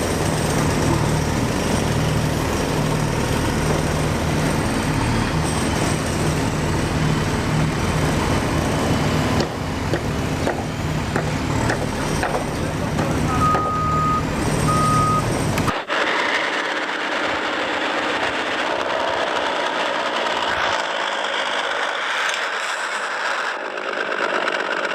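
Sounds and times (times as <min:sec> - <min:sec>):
truck engine running: 0:00.0 - 0:24.9
short high beeps: 0:13.3 - 0:15.3.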